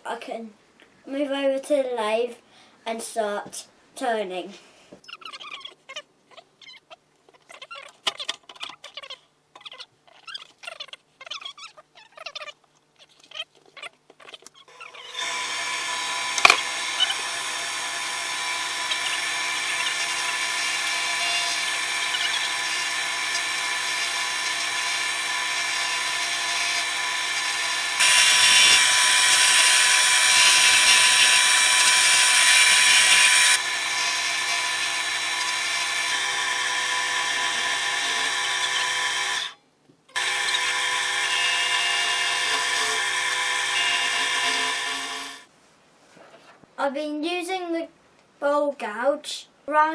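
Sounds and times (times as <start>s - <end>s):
gouge cutting spinning wood: 14.8s - 39.6s, 40.2s - 45.4s
lathe motor whine: 14.8s - 39.6s, 40.2s - 45.4s.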